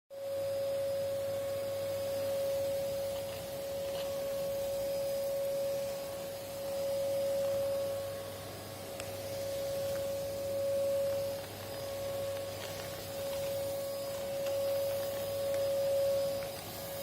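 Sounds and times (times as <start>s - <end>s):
vacuum cleaner running: 0.2s - 17.0s.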